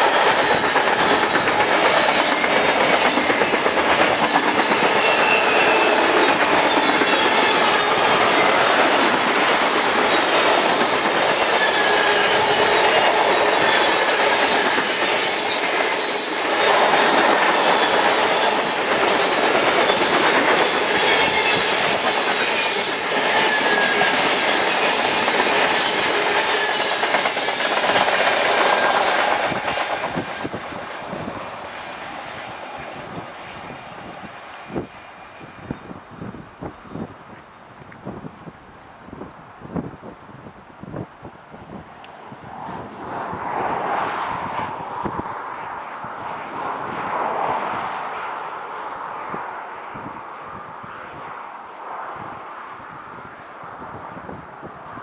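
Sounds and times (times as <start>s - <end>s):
steel wheels clattering over rails: 0.0s - 31.6s
wheel flange squeals: 4.5s - 8.7s, 9.6s - 32.0s.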